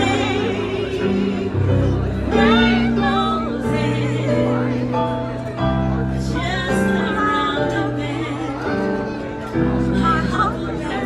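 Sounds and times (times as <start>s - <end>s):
held bass chords: 0.0s - 8.6s.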